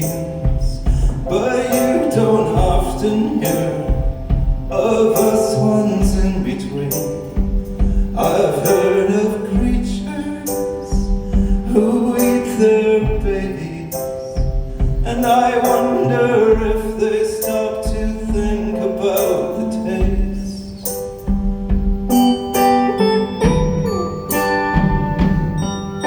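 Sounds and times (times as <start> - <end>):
person singing: 0.0 - 21.3
drums keeping a steady beat: 0.0 - 26.0
sustained keyboard or guitar chords: 20.0 - 26.0.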